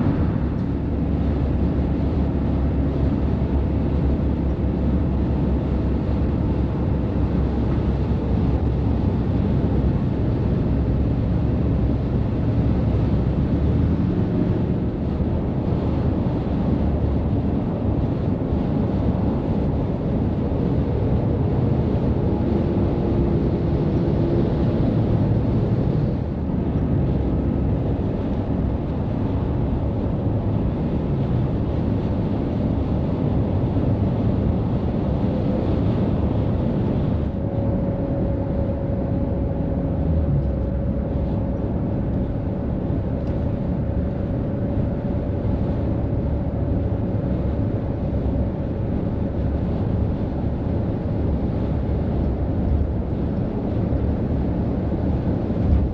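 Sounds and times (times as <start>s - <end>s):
steady whine: 0.0s - 2.9s
trucks engine and tyre noise: 0.0s - 55.9s.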